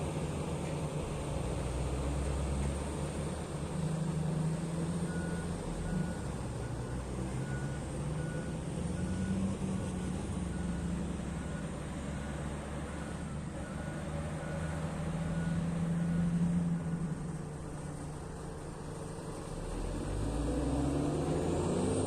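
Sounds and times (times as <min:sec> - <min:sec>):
diesel engine running: 0:00.0 - 0:22.0
reversing alarm beeping: 0:05.1 - 0:17.2.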